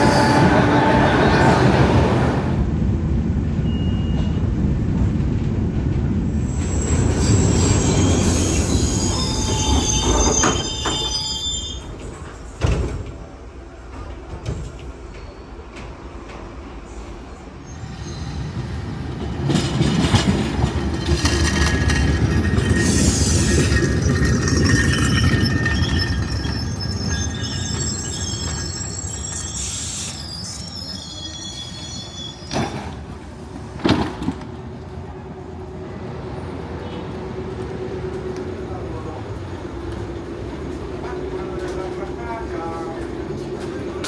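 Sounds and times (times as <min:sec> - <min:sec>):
high wheel squeal: 0:00.0 - 0:02.2, 0:06.4 - 0:12.6, 0:16.6 - 0:18.8, 0:21.0 - 0:33.0
tram rumbling on rails: 0:00.0 - 0:44.0.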